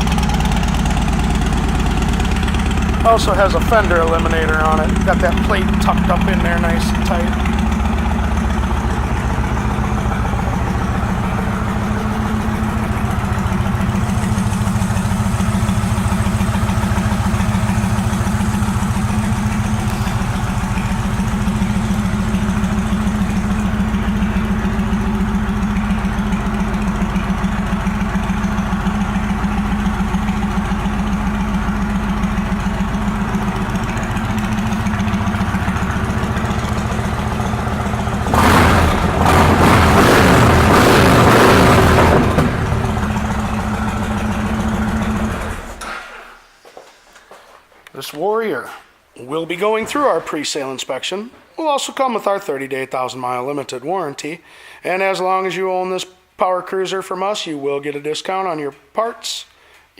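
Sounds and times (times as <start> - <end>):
motorcycle engine idling: 0.0 - 45.8.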